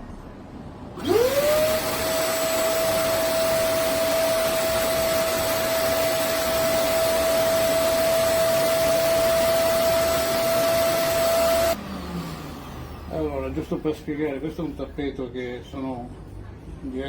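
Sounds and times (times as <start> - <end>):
carpet cleaner suction motor whine: 1.0 - 13.9.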